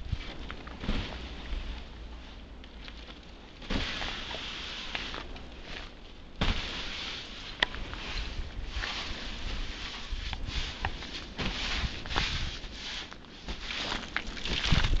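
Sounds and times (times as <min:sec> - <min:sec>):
footsteps crunching in snow: 0:03.7 - 0:15.0.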